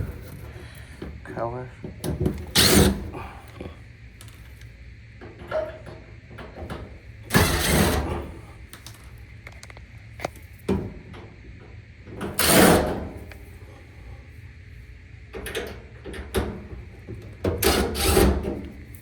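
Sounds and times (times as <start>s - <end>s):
scraping of panels and screws: 2.0s - 3.2s, 7.3s - 8.4s, 17.5s - 18.7s
clicks of handling parts: 8.7s - 10.5s.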